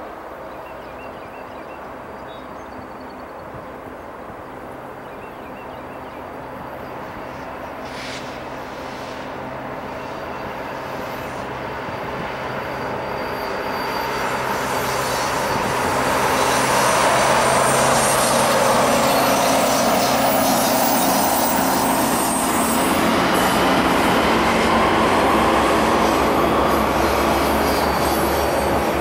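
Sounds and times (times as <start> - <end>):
diesel locomotive engines running: 0.1 - 29.0.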